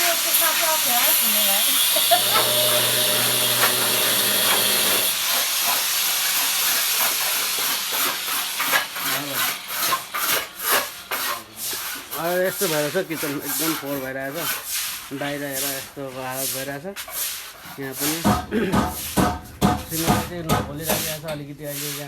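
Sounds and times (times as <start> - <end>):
scraping strokes: 3.1 - 18.3, 19.8 - 22.0.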